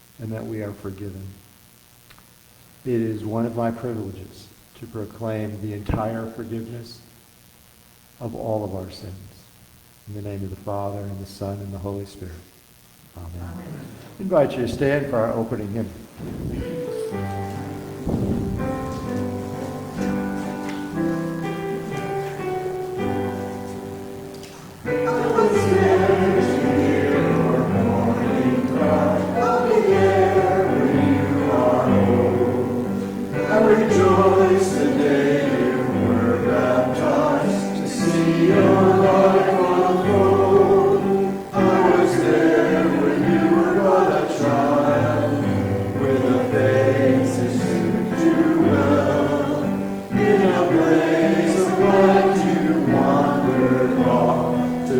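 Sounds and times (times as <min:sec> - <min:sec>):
congregation singing a hymn: 0:13.8 - 0:54.9
piano accompaniment: 0:16.2 - 0:54.9.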